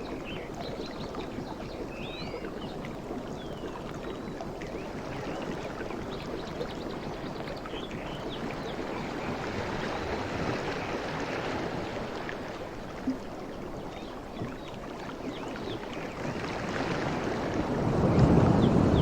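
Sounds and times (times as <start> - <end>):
sea waves washing: 16.5 - 19.0.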